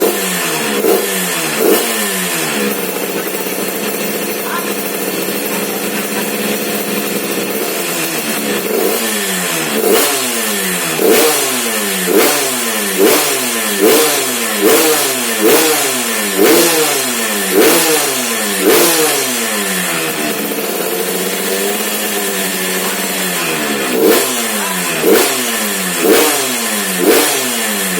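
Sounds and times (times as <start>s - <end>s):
two-stroke engine revving: 0.0s - 27.9s.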